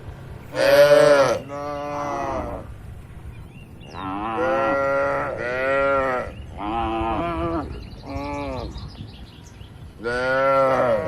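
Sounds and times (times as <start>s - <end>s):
cattle mooing: 0.5s - 2.8s, 3.9s - 8.7s, 10.0s - 11.0s.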